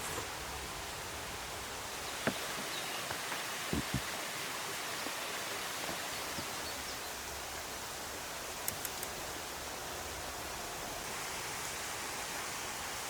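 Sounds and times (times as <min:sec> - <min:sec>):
soft clicks: 0:08.6 - 0:09.2.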